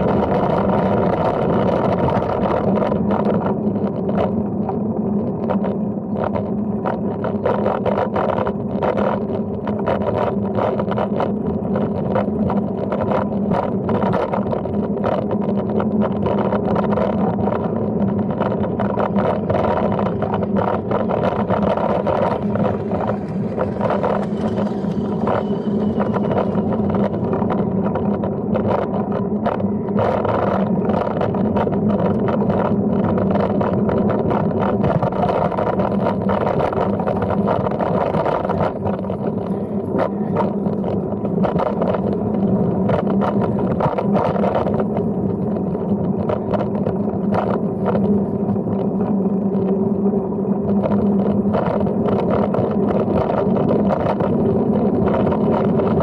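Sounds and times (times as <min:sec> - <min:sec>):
bicycle knocks and rattles: 0:00.0 - 0:56.0
bicycle rolling hum: 0:00.0 - 0:56.0.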